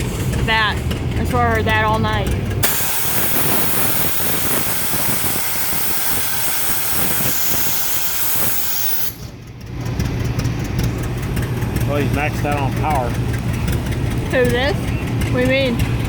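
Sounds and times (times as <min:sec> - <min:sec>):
safety valve blowing off steam: 0:02.6 - 0:09.3.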